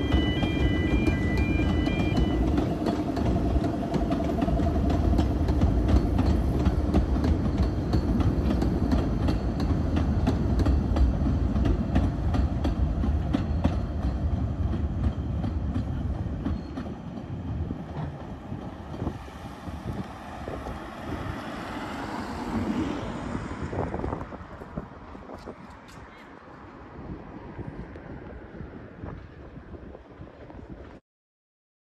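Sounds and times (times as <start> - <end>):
train wheels clicking over rail joints: 0.0 - 20.8
train low rumble: 0.0 - 31.0.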